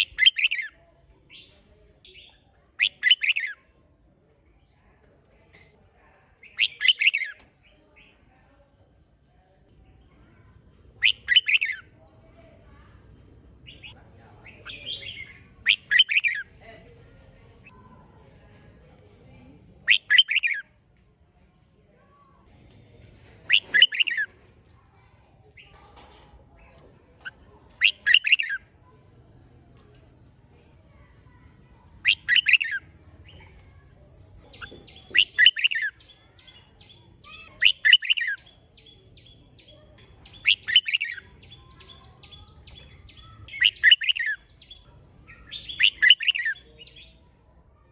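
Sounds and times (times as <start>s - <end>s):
bulbul singing warbled phrases: 0.0s - 3.6s, 6.3s - 8.4s, 11.0s - 12.4s, 13.6s - 16.6s, 19.1s - 20.6s, 23.1s - 24.3s, 26.6s - 30.4s, 31.1s - 47.5s
high ticking chatter: 0.0s - 3.6s, 6.4s - 8.2s, 11.0s - 12.2s, 13.4s - 16.6s, 19.1s - 20.6s, 23.0s - 24.8s, 25.5s - 30.4s, 31.1s - 47.2s.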